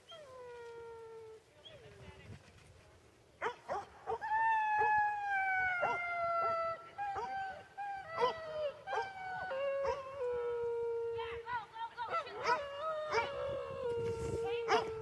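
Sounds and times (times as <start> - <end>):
dogs howling: 4.1 - 11.5, 12.1 - 15.0
dogs yipping and barking: 5.8 - 6.6, 8.1 - 9.2, 12.1 - 13.4.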